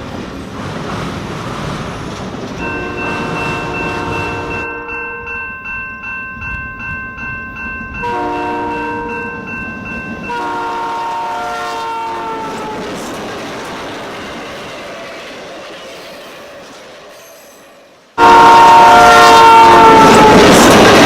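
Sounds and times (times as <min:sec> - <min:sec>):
locomotive air horn: 0:02.6 - 0:05.3, 0:08.0 - 0:09.2, 0:10.3 - 0:12.8, 0:18.2 - 0:20.5
high ringing tone: 0:02.6 - 0:11.2.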